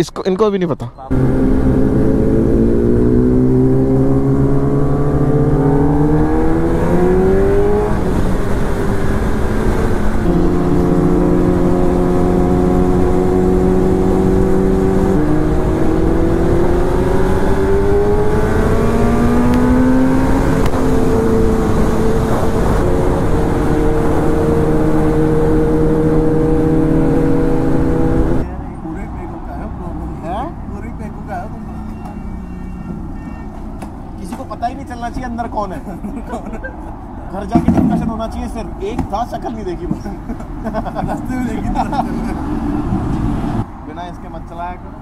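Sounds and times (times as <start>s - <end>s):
motorcycle engine shifting gears: 1.1s - 28.4s.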